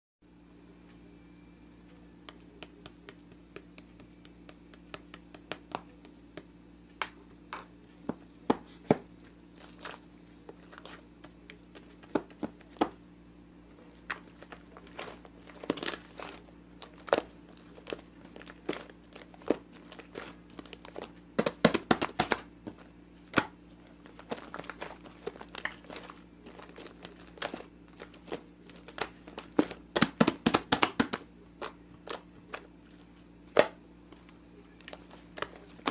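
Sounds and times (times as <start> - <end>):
faint low hum: 0.2 - 35.9
crinkling and crackling: 7.9 - 13.0, 13.7 - 35.9.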